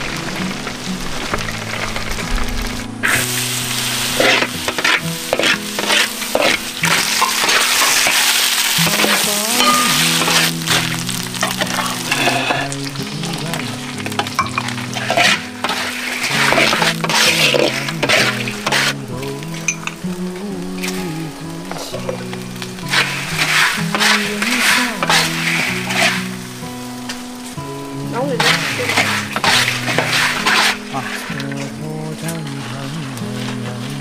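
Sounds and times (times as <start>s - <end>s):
background music: 0.0s - 34.0s
food sizzling in hot oil: 0.0s - 34.0s
spatula scraping and clinking: 4.2s - 12.5s, 14.2s - 19.0s, 22.9s - 26.3s, 28.4s - 31.6s.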